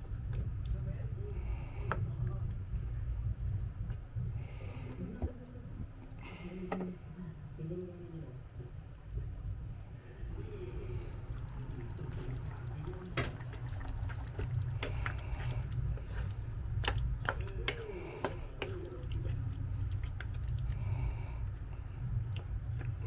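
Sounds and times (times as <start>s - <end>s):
liquid bubbling in a pot: 0.0s - 23.0s
steady low rumble: 0.0s - 23.0s.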